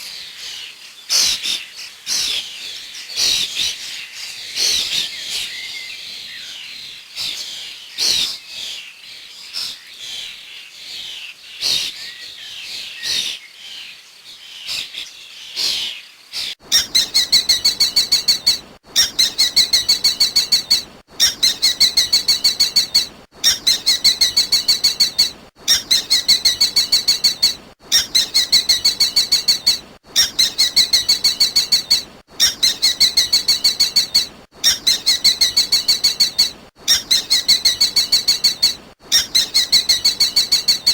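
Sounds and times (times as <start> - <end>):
bird chirps and calls: 16.6 - 40.9.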